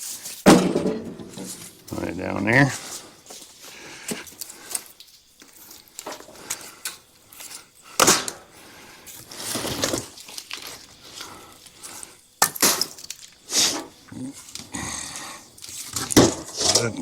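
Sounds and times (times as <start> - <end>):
firewood knocking and thudding: 0.4 - 2.2, 15.9 - 16.9.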